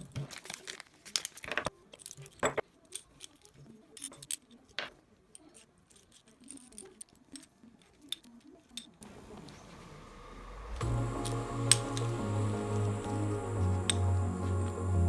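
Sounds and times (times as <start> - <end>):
hand tools clinking: 1.2 - 9.0.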